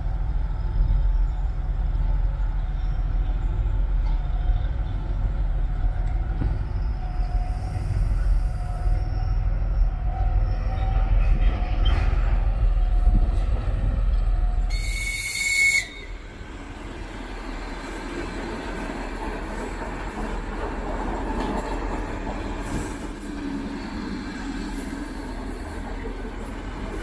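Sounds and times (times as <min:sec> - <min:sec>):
train wheels clickety-clack: 0:11.1 - 0:15.4, 0:17.8 - 0:27.0
high train horn: 0:14.7 - 0:16.2.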